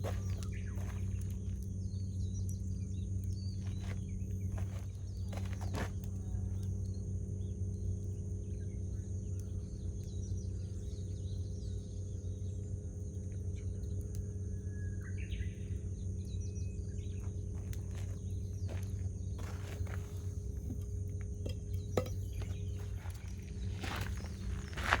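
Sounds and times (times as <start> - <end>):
wild birds calling: 0.0 - 1.6, 21.5 - 25.0
fire crackles: 0.0 - 8.3
campfire rumble: 0.0 - 14.7, 15.6 - 25.0.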